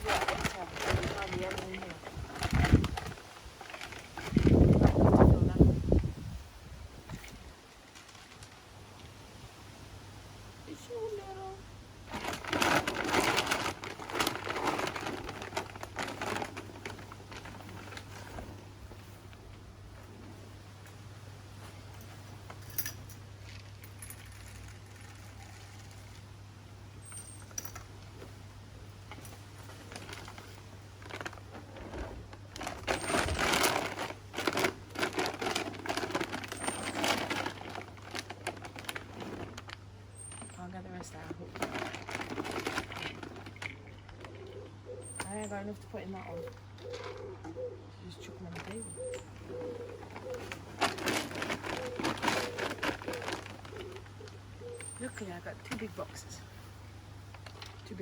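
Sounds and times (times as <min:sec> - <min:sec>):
bird feed pouring rattle: 0:23.5 - 0:26.2
pigeons cooing: 0:43.6 - 0:55.2.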